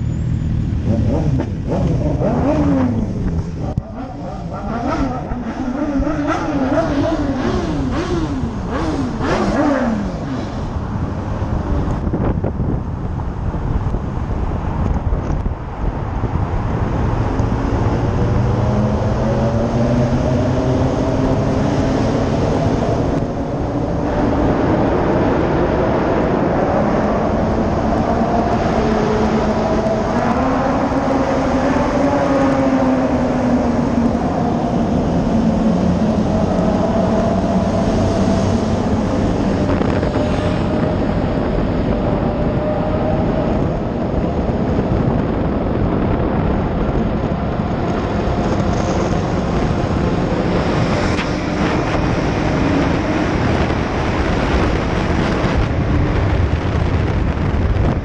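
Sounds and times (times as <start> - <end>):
car engine revving: 0.0 - 12.5
road and wind noise: 0.0 - 58.0.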